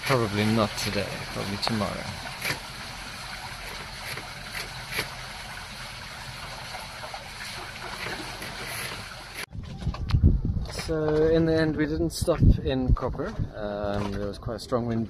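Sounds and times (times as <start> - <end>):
water splashing along boat hull: 0.0 - 9.5.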